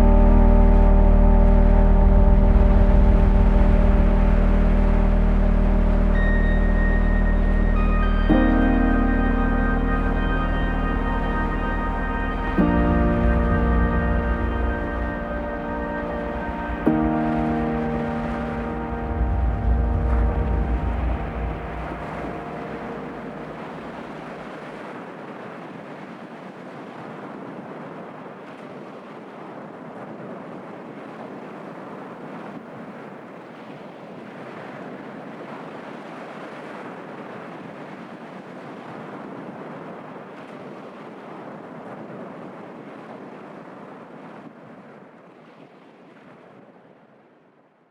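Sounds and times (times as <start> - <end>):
low music chord: 0.0 - 24.4
steady rushing noise: 0.0 - 25.5.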